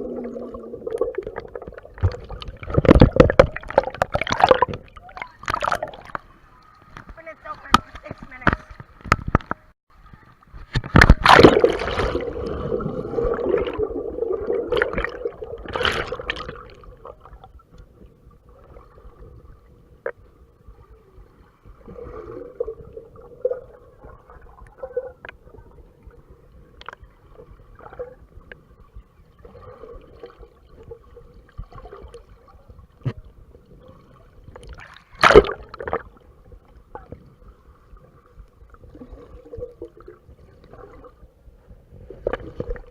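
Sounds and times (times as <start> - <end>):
water splashing: 0.0 - 9.4, 10.5 - 17.8, 33.8 - 41.2
muffled water sloshing and gurgling: 0.0 - 42.9.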